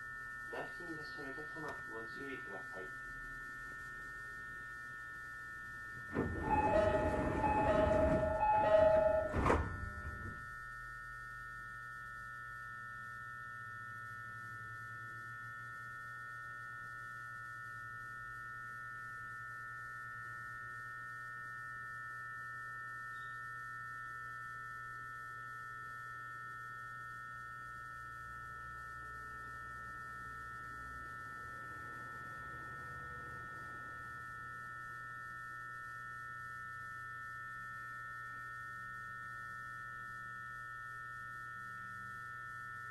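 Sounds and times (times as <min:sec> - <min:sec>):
high-pitched electrical whine: 0:00.0 - 0:42.9
low electrical hum: 0:00.0 - 0:42.9
brief noise: 0:06.2 - 0:10.4.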